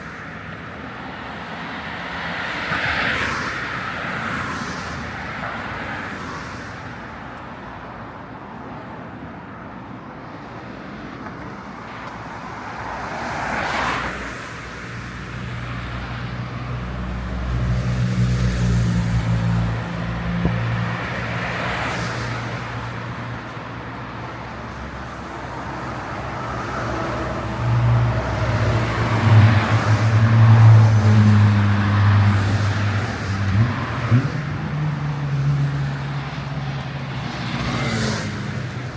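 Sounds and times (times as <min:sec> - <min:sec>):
cars passing by: 0:00.0 - 0:38.9
engines humming: 0:15.7 - 0:38.9.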